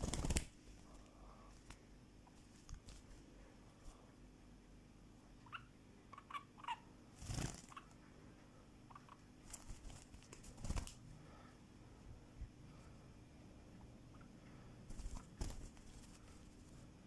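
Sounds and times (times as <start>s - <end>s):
bird chirping softly: 5.3s - 6.9s, 8.8s - 9.9s
rustling: 14.9s - 17.0s.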